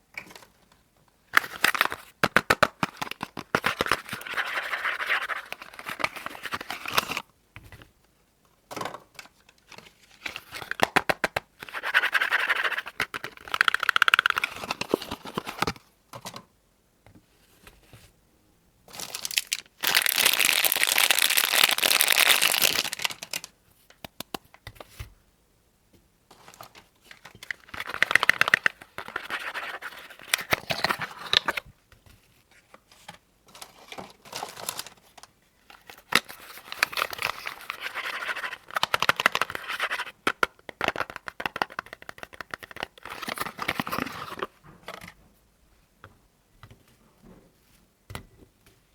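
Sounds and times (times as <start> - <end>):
wrapper crinkling and tearing: 18.9 - 23.5.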